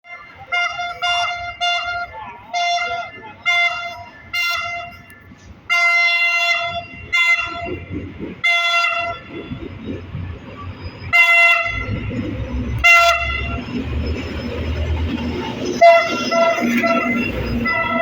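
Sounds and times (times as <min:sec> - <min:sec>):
locomotive engine rumble: 0:00.0 - 0:18.0
locomotive horn blasts: 0:00.1 - 0:07.8, 0:08.4 - 0:09.3, 0:11.1 - 0:12.1, 0:12.8 - 0:13.8, 0:15.6 - 0:18.0.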